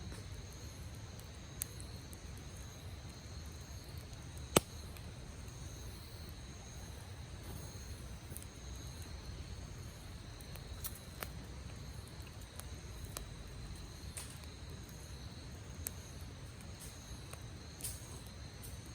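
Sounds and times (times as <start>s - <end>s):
campfire rumble: 0.0s - 18.9s
insects trilling: 0.0s - 18.9s
wood popping in fire: 0.0s - 18.9s.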